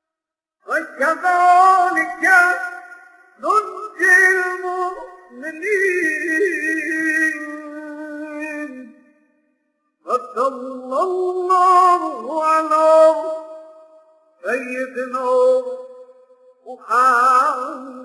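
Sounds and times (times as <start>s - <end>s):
man chanting a prayer: 0.7s - 8.9s.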